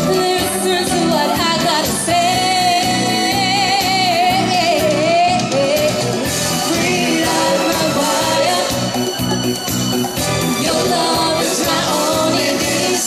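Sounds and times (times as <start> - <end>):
woman singing: 0.0 - 9.0
pop music: 0.0 - 13.0.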